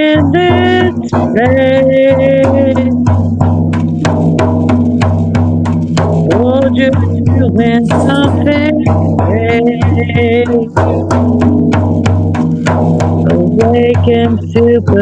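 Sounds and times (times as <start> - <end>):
person singing long notes: 0.0 - 3.2, 6.2 - 11.3, 13.2 - 15.0
fast drum beat: 0.0 - 15.0.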